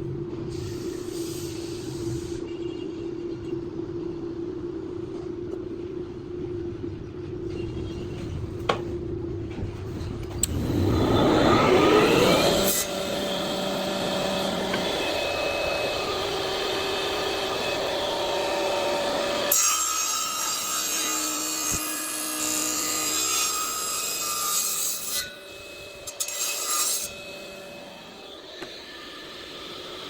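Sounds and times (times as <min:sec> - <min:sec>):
power tool working wood: 0:10.4 - 0:30.0.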